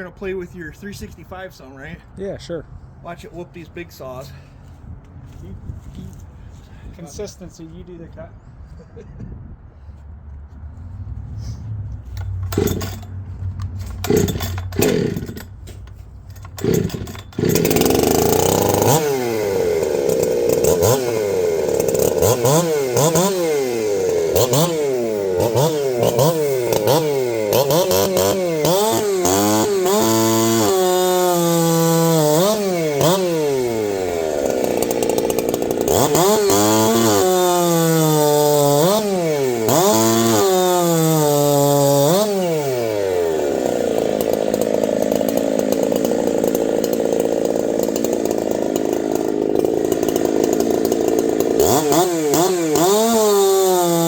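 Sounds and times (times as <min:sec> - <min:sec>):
chainsaw engine revving: 0:12.1 - 0:54.0.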